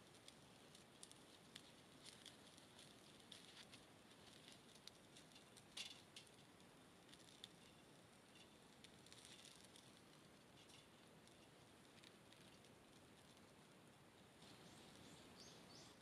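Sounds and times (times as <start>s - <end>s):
small wood fire crackling: 0.0s - 16.0s.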